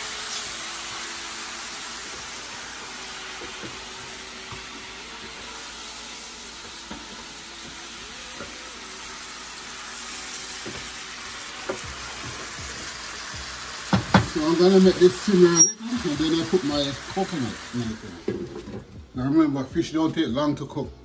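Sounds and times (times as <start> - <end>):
food sizzling in a pan: 0.0 - 18.8
wooden spoon knocking on pan: 13.9 - 14.4.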